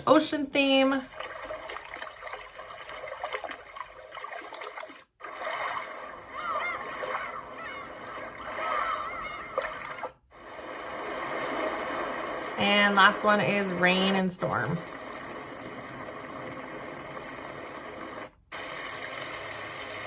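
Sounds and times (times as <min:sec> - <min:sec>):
splashing water from speaker: 0:01.0 - 0:10.2.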